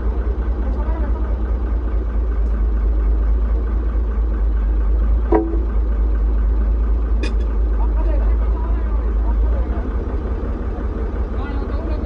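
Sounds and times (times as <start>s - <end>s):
truck diesel engine idling: 0.0s - 12.0s
sharp metallic clank: 5.3s - 5.8s.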